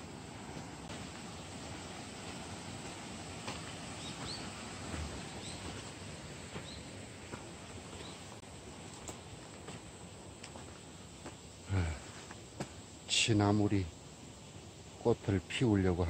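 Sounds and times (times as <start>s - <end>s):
mountain stream rushing: 0.0s - 10.8s
footsteps crunching on dirt: 0.4s - 11.4s, 12.1s - 12.8s
small bird chirping: 3.9s - 5.9s, 6.5s - 6.9s.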